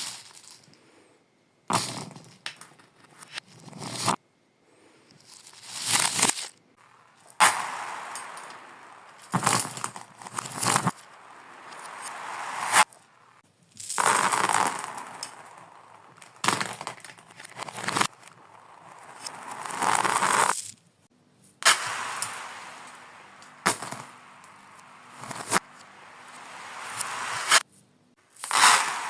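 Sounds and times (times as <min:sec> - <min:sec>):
reversed marbles rushing: 0:05.3 - 0:20.7, 0:21.6 - 0:27.7, 0:28.4 - 0:29.0
marbles clinking: 0:06.8 - 0:20.7, 0:28.4 - 0:29.0.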